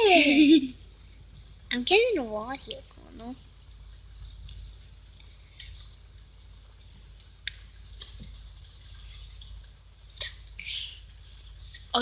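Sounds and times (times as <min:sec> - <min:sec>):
faint high hiss: 0:00.0 - 0:01.0, 0:09.1 - 0:12.0
low steady hum: 0:00.0 - 0:12.0
rain drips and taps: 0:00.8 - 0:12.0.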